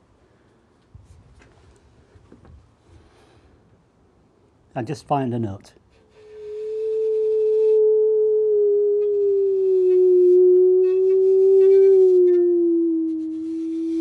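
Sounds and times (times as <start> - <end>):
bowed musical saw tone: 6.2 - 14.0.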